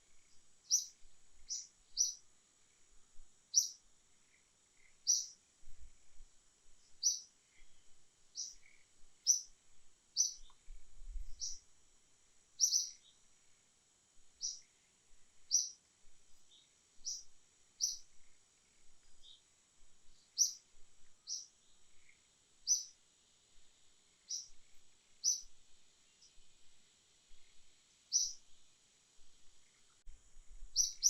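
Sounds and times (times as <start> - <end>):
bird chirping: 0.2 - 2.2, 3.5 - 3.9, 4.8 - 5.4, 6.8 - 9.6, 10.2 - 10.7, 11.3 - 11.7, 12.6 - 13.2, 14.4 - 14.7, 15.5 - 15.8, 16.4 - 19.5, 20.1 - 23.0, 24.2 - 25.5, 27.3 - 28.4, 30.7 - 31.0.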